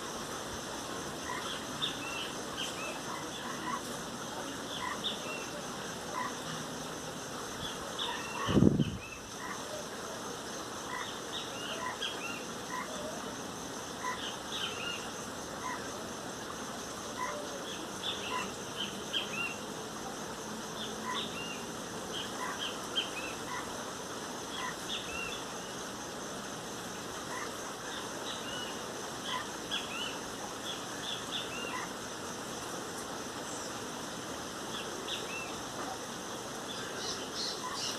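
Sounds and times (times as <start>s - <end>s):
birds chirping: 1.2s - 6.6s, 24.4s - 25.9s, 27.3s - 32.0s, 33.0s - 37.9s.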